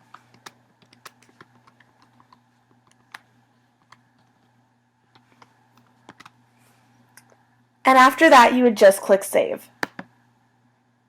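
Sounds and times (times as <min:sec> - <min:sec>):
low electrical hum: 0:00.0 - 0:11.0
typing on keyboard: 0:00.3 - 0:03.2.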